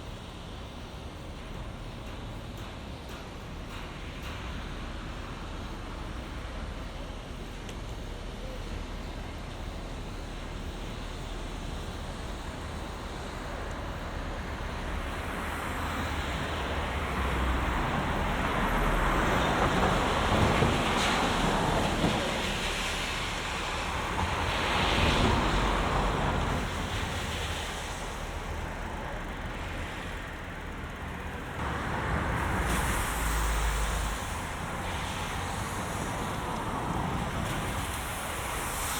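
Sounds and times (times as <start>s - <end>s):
cars passing: 14.6s - 38.9s.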